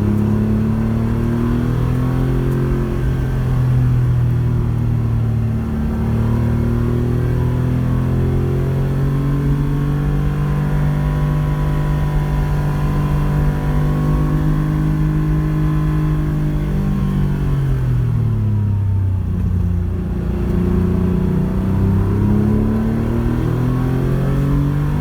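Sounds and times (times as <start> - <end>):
rally car engine revving: 0.0 - 18.3, 19.3 - 25.0.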